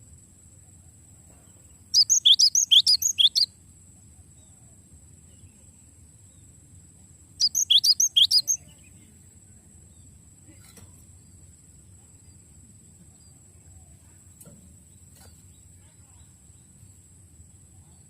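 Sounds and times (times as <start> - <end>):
bird singing high chirps: 1.6 - 3.5, 7.4 - 9.0.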